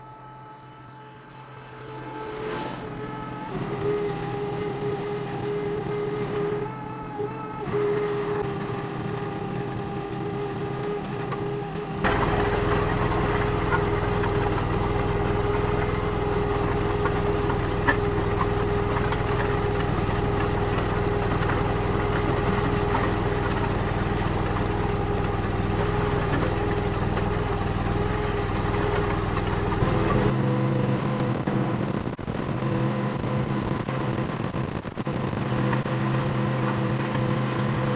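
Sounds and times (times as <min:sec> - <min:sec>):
gas engine running: 0:01.3 - 0:37.9.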